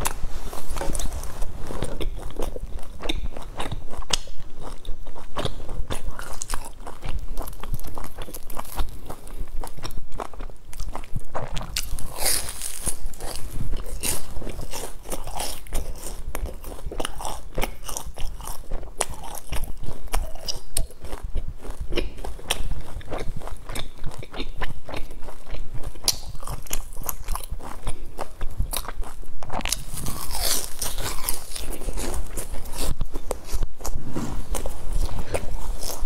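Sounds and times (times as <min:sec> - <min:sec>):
crunching and chewing bun: 0:00.0 - 0:36.0.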